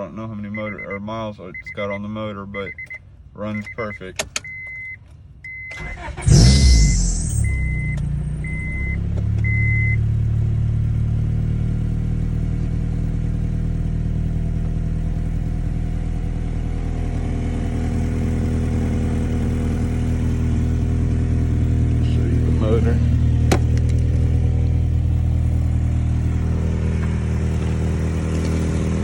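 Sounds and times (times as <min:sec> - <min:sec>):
warning chime beeps: 0:00.5 - 0:02.0, 0:06.5 - 0:10.0
car engine idling: 0:02.6 - 0:29.0.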